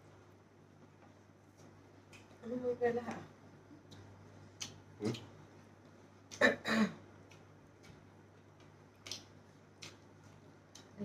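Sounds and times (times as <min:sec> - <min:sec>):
low steady hum: 0:00.0 - 0:11.0
wet mouth clicks and smacks chewing: 0:03.9 - 0:05.3, 0:08.6 - 0:11.0
throat sound: 0:05.0 - 0:05.3.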